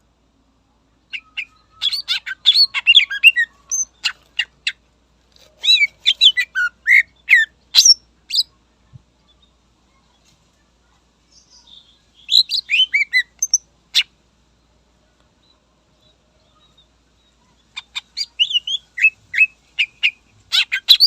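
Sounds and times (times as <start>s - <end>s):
bird chirping and whistling: 1.2s - 3.9s, 5.6s - 8.4s, 12.3s - 13.6s.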